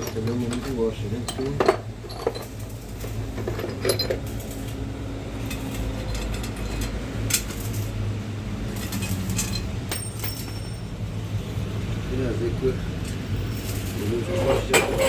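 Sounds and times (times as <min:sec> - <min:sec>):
metal hardware clinking: 0:00.0 - 0:04.7, 0:05.4 - 0:08.0, 0:08.7 - 0:11.0
low background hum: 0:00.0 - 0:15.0.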